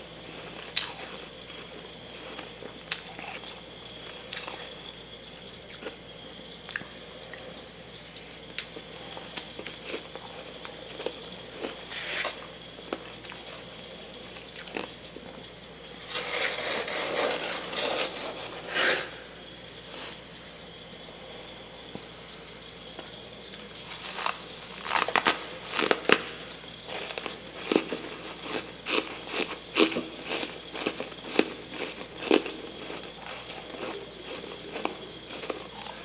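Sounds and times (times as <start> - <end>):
chewing crunchy frost: 0.3 - 4.7, 6.7 - 13.7, 23.5 - 36.0.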